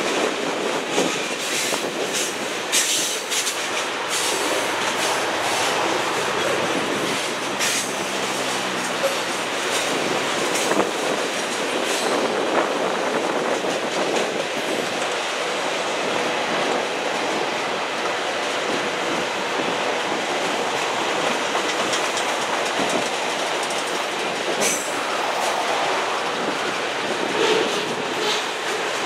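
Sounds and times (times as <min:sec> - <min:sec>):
wheels clicking over rail joints: 0:00.0 - 0:17.4, 0:18.0 - 0:29.0
freight cars rolling on rails: 0:00.0 - 0:29.0.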